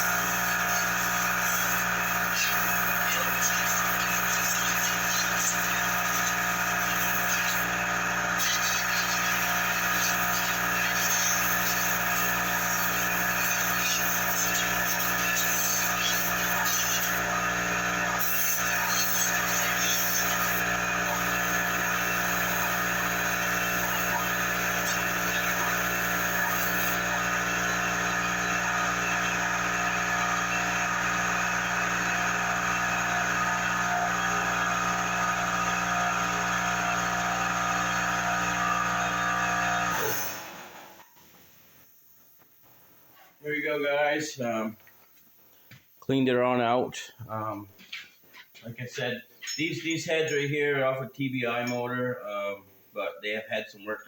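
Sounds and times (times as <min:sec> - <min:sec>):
electric machine motor humming: 0:00.0 - 0:41.1.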